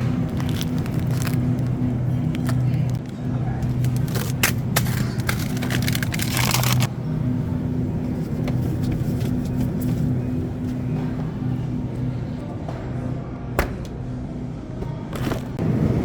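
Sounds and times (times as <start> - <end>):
car engine running: 0.0 - 12.1.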